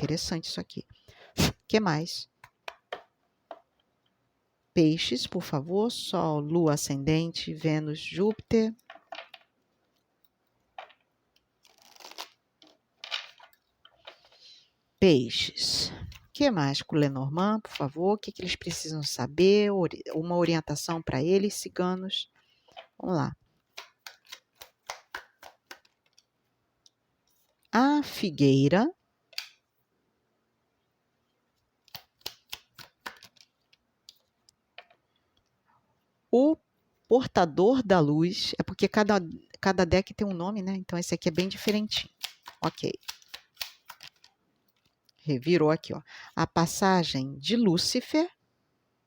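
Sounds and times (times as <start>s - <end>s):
playing cards shuffling: 10.7s - 14.5s, 23.6s - 26.3s, 31.8s - 34.4s, 41.3s - 45.0s.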